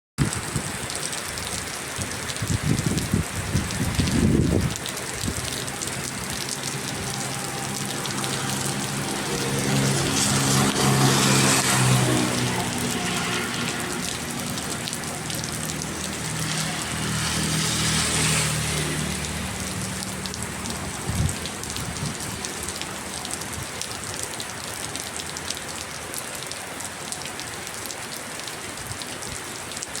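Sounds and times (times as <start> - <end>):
rain falling: 0.2 - 30.0
engine hum: 3.9 - 26.2.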